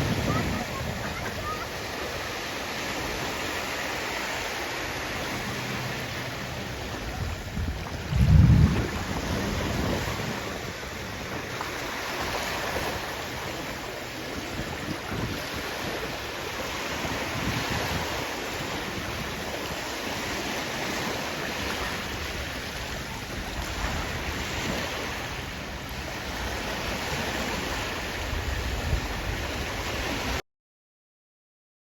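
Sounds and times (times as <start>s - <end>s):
wind buffeting microphone: 0.0s - 4.1s, 5.2s - 30.4s
sea waves on shore: 0.0s - 30.4s.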